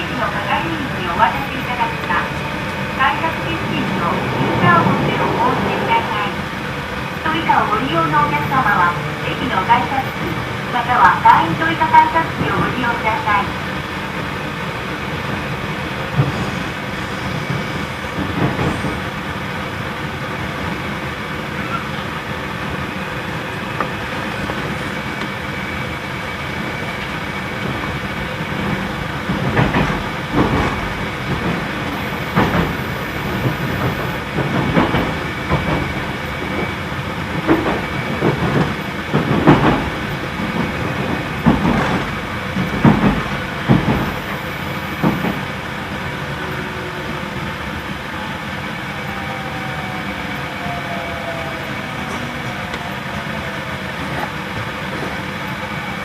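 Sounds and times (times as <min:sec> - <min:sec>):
falling train whine: 0:00.0 - 0:56.0
air conditioning rushing: 0:00.3 - 0:07.7
train wheels clacking over rail joints: 0:15.4 - 0:19.4, 0:26.7 - 0:45.8.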